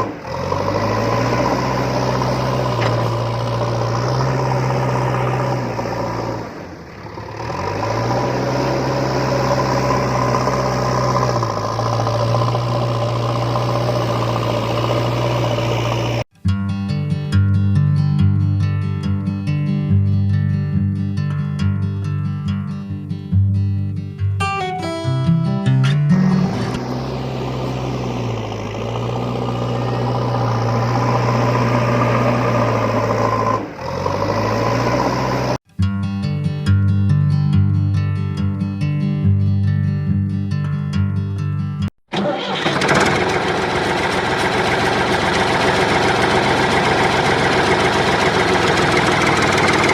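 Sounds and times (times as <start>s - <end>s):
engine humming steadily: 0.0s - 16.3s, 26.2s - 35.6s, 42.6s - 49.9s.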